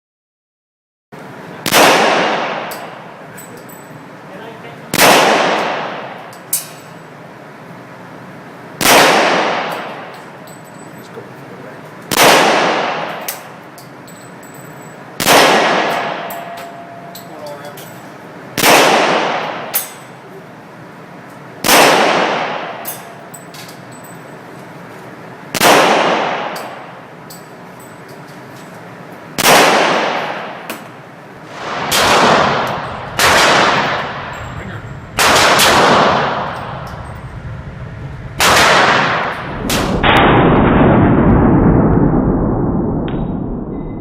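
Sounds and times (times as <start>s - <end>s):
echoing gunshots: 1.6s - 3.2s, 4.9s - 6.3s, 8.8s - 10.1s, 12.1s - 13.6s, 15.2s - 16.9s, 18.6s - 20.0s, 21.6s - 23.1s, 25.5s - 27.1s, 29.4s - 42.6s.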